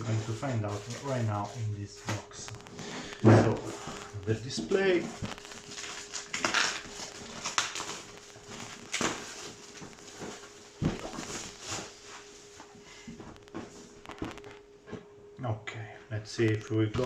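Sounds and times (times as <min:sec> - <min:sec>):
packaging rustling: 0:00.0 - 0:14.7.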